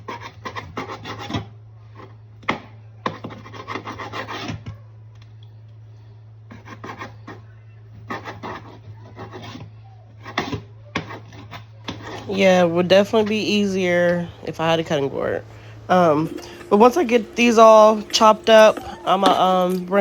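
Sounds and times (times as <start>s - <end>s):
knife sawing through raw chicken: 0.0s - 2.2s, 3.0s - 4.7s, 6.5s - 12.3s
steady low hum: 0.0s - 20.0s.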